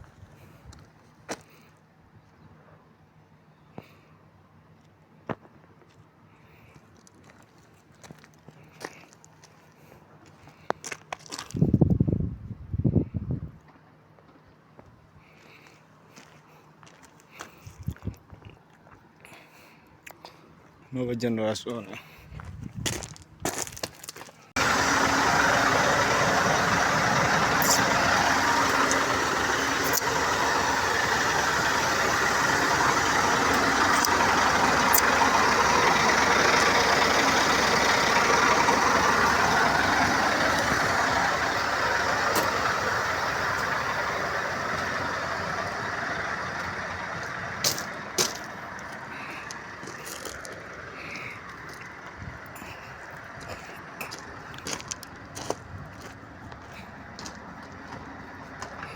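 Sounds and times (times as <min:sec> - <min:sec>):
diesel truck engine running: 0:24.5 - 0:58.9.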